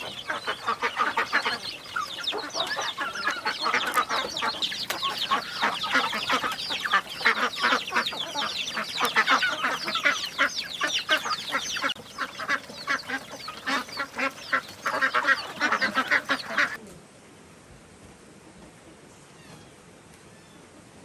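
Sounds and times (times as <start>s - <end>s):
poultry flock calling: 0.0s - 16.8s.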